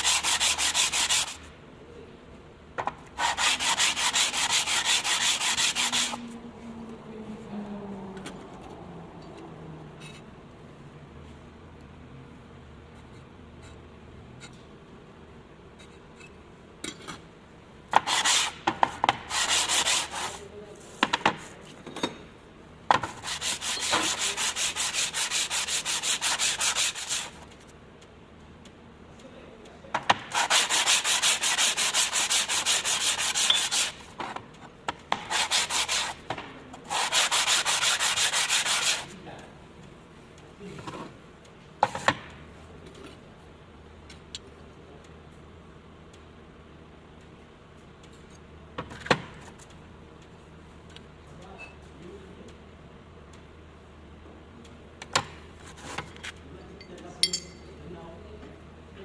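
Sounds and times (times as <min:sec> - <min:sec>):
abrasive rubbing on metal: 0:23.2 - 0:27.4.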